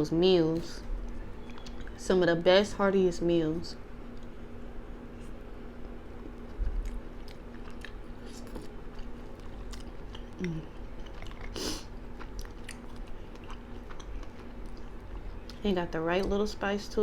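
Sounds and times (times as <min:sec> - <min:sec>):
faint steady hum: 0:00.0 - 0:17.0
person chewing with mouth clicks: 0:01.0 - 0:02.0, 0:05.2 - 0:15.6.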